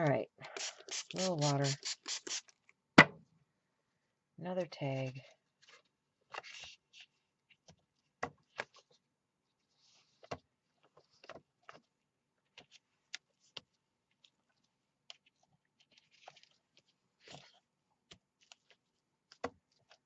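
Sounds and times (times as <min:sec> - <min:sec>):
soft hissing rustles: 0:00.6 - 0:02.4.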